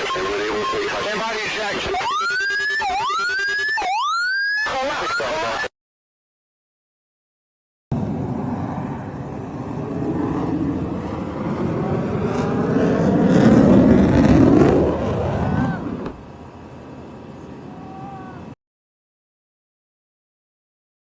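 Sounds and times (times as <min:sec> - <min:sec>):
jet engine roar: 0:00.0 - 0:02.3, 0:07.9 - 0:18.6.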